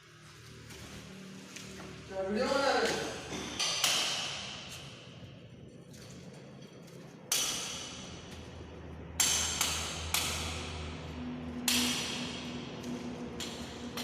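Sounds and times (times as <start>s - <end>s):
low steady hum: 0.0s - 14.0s
sharp metallic clanks: 3.2s - 8.6s, 9.2s - 12.7s.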